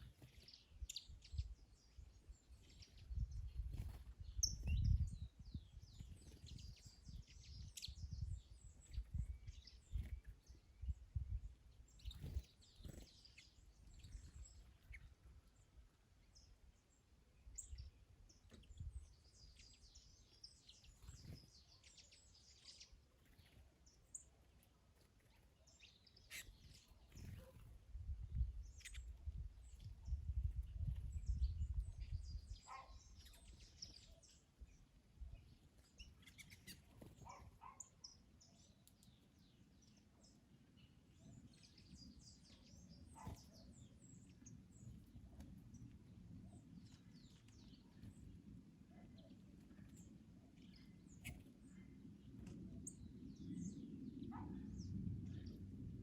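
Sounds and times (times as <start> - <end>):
small birds chirping: 0.0 - 55.9
wind buffeting microphone: 2.7 - 13.1, 27.2 - 33.9, 52.0 - 56.0.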